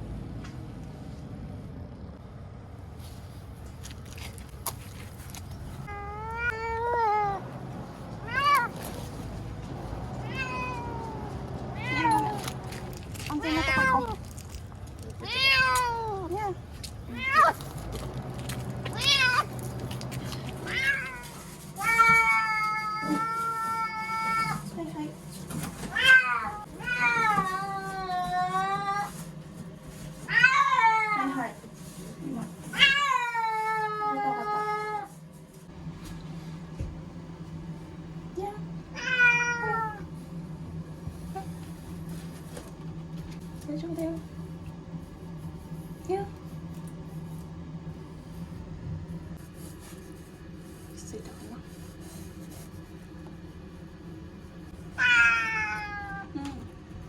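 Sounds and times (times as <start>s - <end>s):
low background rumble: 0.0s - 57.0s
cat meowing in distress: 5.8s - 7.4s, 8.2s - 8.8s, 10.2s - 12.6s, 20.6s - 24.6s, 38.9s - 40.1s, 55.0s - 56.6s
cat yowling in distress: 5.9s - 7.4s, 55.0s - 56.4s.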